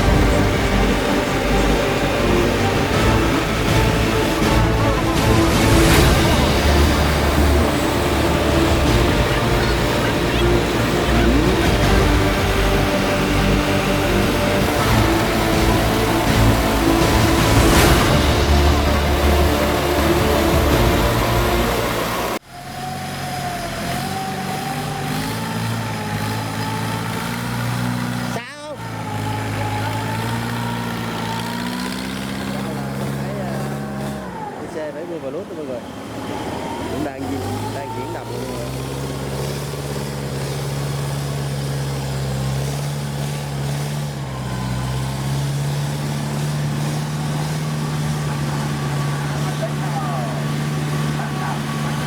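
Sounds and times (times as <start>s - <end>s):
loud sound cut off: 0.0s - 24.6s
combine harvester engine running: 0.0s - 52.0s.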